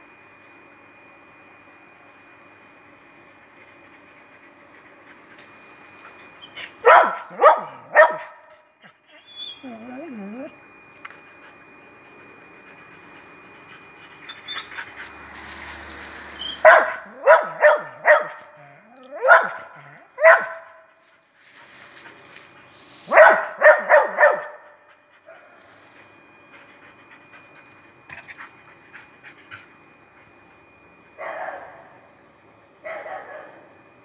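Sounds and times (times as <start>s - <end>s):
dogs barking: 6.6s - 8.5s, 16.5s - 20.8s, 23.0s - 25.6s.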